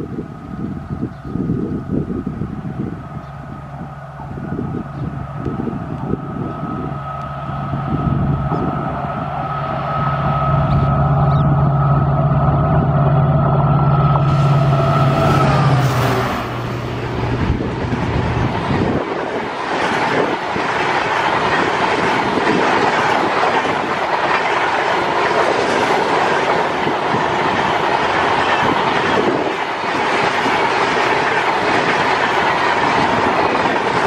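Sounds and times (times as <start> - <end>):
diesel engine drone: 0.0 - 21.8
high rail hum: 0.0 - 34.0
train wheels clattering over rails: 14.2 - 34.0.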